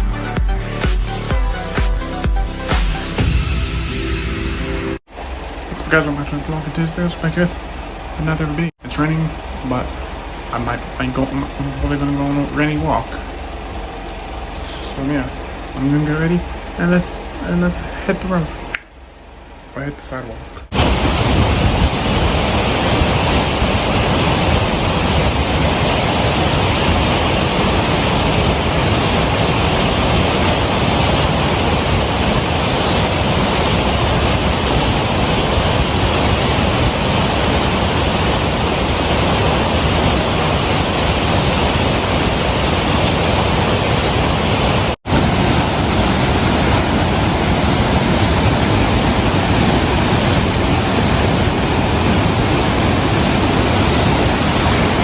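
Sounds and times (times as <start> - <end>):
heavy rain: 20.6 - 55.0.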